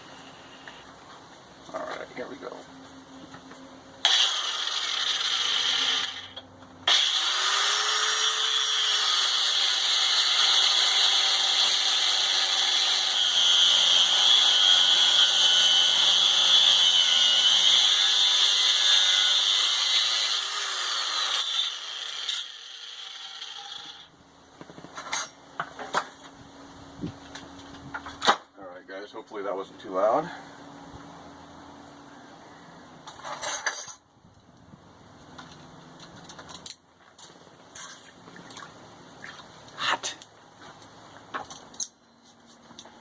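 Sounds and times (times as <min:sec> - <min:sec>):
angle grinder whining on steel: 0:04.0 - 0:24.1.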